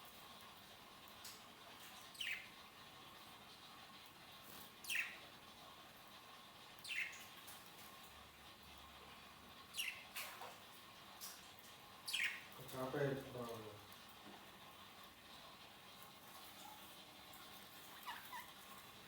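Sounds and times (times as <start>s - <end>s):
lovebirds chirping: 2.0s - 2.5s, 4.8s - 5.2s, 6.8s - 7.2s, 9.7s - 10.2s, 12.0s - 12.5s.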